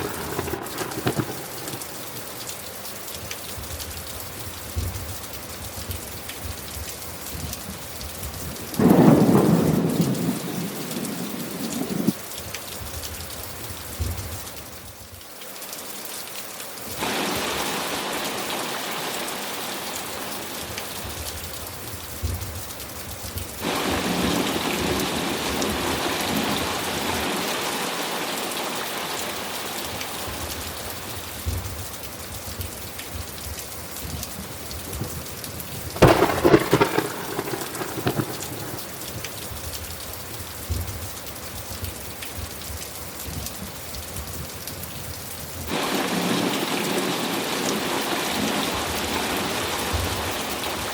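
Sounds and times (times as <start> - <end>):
thunderclap rumbling: 0.0 - 2.2, 8.5 - 12.2, 23.6 - 27.5, 34.9 - 39.7, 45.7 - 50.9
heavy rain: 0.0 - 50.9.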